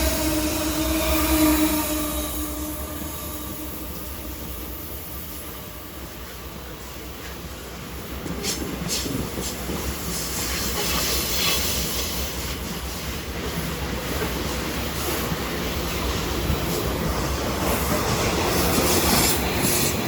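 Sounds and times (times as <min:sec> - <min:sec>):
train wheels on rails: 0:00.0 - 0:20.0
clacks at rail joints: 0:07.1 - 0:15.4.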